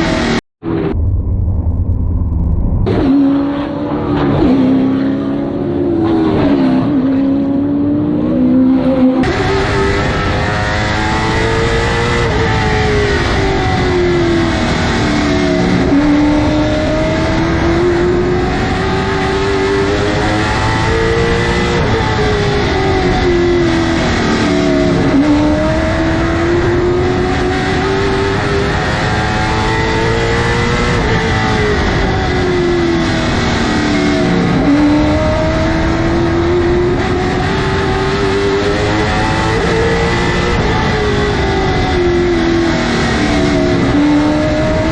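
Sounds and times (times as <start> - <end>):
steady high whine: 0.3 - 5.9
race car engine accelerating: 2.8 - 44.9.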